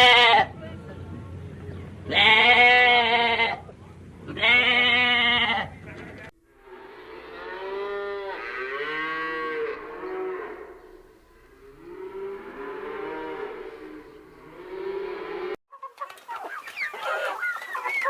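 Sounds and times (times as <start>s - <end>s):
cow mooing: 6.6s - 15.6s.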